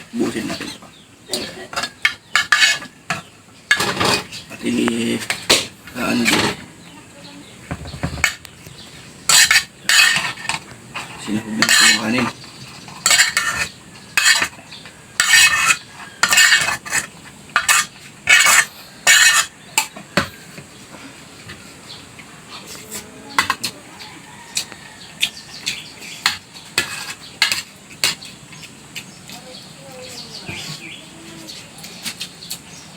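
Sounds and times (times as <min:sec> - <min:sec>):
spoon scraping and clinking on plate: 0:01.4 - 0:06.6, 0:09.3 - 0:14.6, 0:15.2 - 0:20.0, 0:24.3 - 0:28.3.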